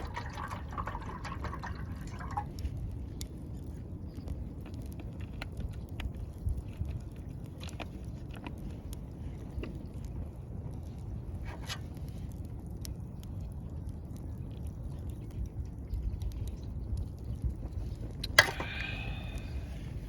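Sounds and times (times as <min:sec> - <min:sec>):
wood popping loudly: 0:00.0 - 0:02.5
campfire burning rumble: 0:00.0 - 0:20.0
small fire crackles: 0:00.0 - 0:20.0.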